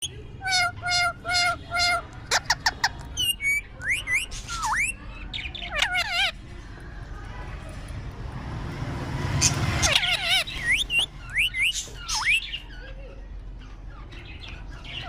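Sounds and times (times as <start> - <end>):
parrot calling and whistling: 0.4 - 5.0, 9.4 - 12.8.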